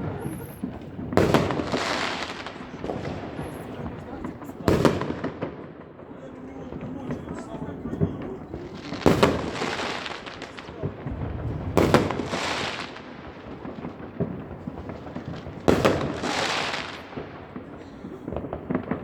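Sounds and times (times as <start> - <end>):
fireworks shells bursting: 0.0 - 5.5.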